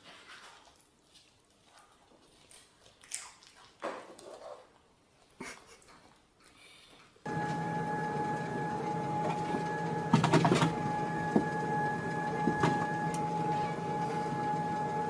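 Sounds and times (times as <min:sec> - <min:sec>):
machine whining and humming: 0:07.3 - 0:15.0.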